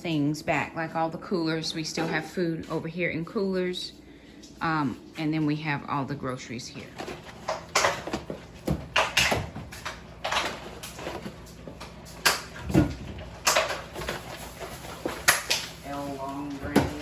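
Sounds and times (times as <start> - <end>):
rustles and clunks of containers: 6.7 - 17.0.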